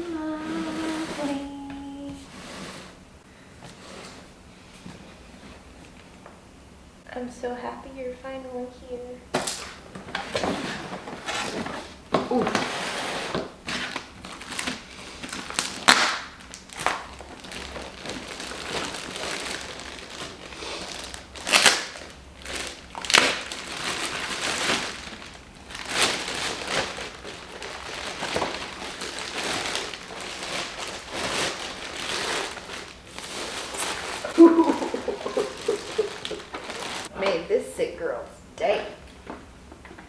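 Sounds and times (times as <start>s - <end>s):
packaging crinkling and rustling: 9.4s - 37.1s.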